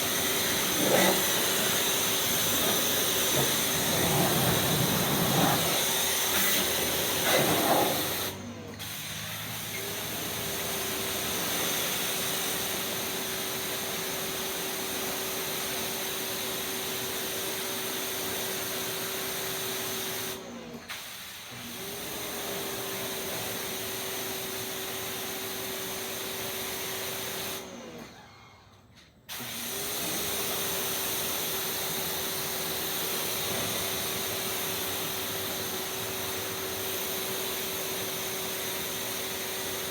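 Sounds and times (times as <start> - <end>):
pressure washer spraying: 0.0 - 8.4
pressure washer motor hum: 0.0 - 13.8.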